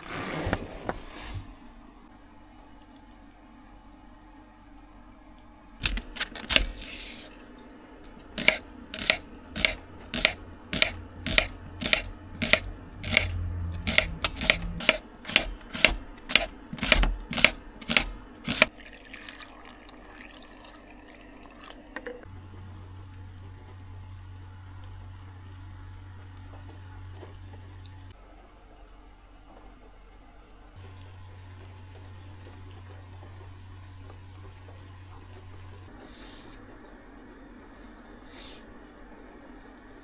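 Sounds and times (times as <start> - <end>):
knife chopping on cutting board: 5.8 - 7.0, 8.1 - 18.7.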